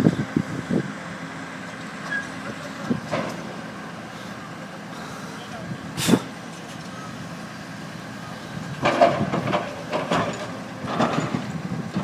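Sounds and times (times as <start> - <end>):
excavator engine running: 0.0 - 12.0
crunching clattering demolition bangs: 8.6 - 12.0.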